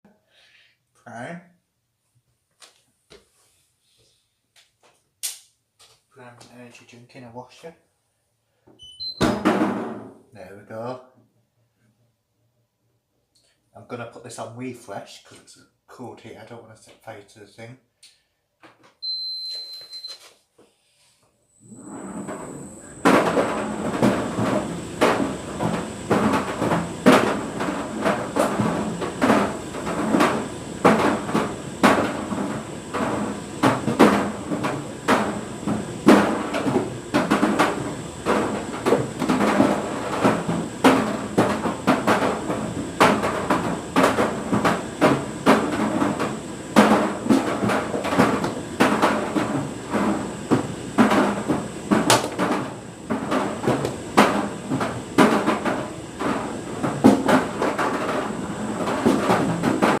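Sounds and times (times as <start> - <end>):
tumble dryer drum turning: 21.6 - 60.0
can clattering in dryer drum: 22.1 - 60.0.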